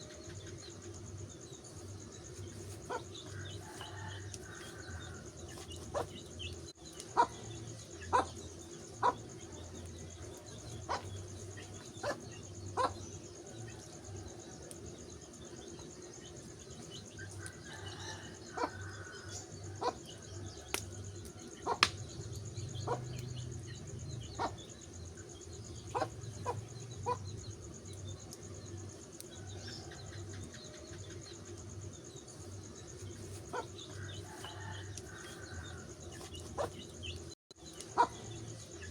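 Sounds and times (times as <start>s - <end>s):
insects chirring: 0.0s - 38.9s
wood fire crackling and popping: 20.7s - 22.4s.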